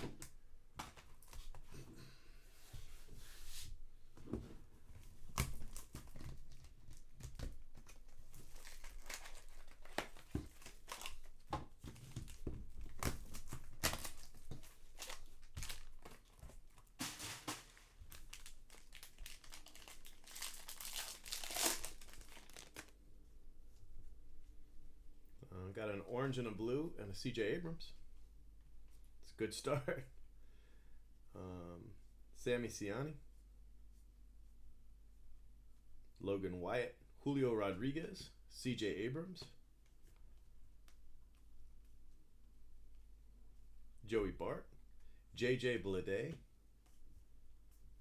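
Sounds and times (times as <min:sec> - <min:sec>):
card pack wrappers tearing and crinkling: 0:05.3 - 0:23.0.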